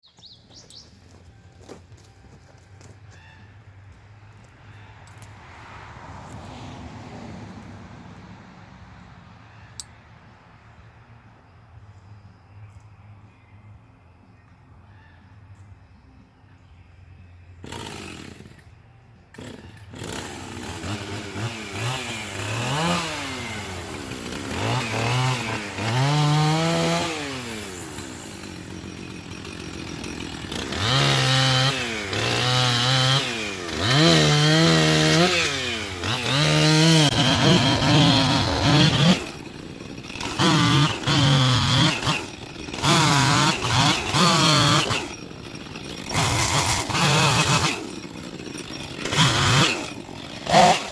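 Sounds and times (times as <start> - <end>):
chainsaw revving: 17.6 - 18.7, 19.3 - 50.9.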